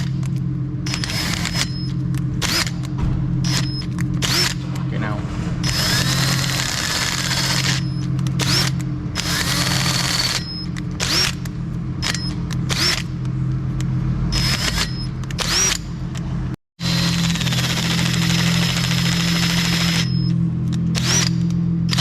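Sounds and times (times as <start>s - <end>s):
steady low hum: 0.0s - 22.0s
power drill whine: 0.8s - 2.8s, 3.4s - 4.6s, 5.6s - 11.4s, 12.0s - 13.1s, 14.3s - 15.9s, 16.8s - 22.0s.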